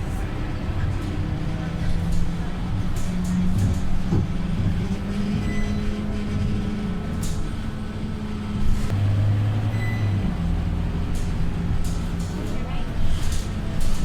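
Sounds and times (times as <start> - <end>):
bus diesel engine droning: 0.0 - 14.0.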